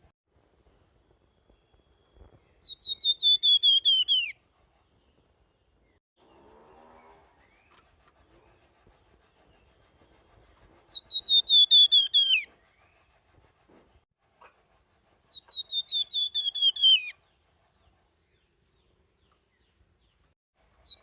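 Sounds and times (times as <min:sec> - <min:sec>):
bird whistled song: 0:01.5 - 0:04.4, 0:10.9 - 0:13.0, 0:15.3 - 0:17.4.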